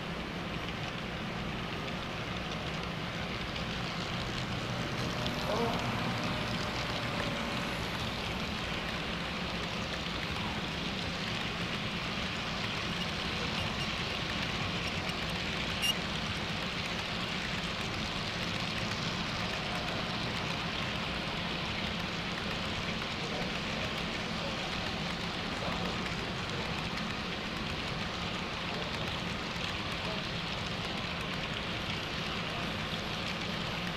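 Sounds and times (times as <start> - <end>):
model train wheels rattling on rail: 0.0 - 33.9
low hum: 1.8 - 16.0.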